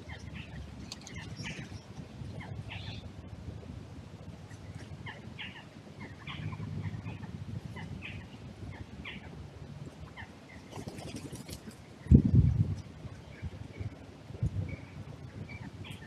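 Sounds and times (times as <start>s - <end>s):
small birds chirping: 0.0s - 3.1s
low steady rumble: 0.0s - 10.7s, 11.4s - 16.0s.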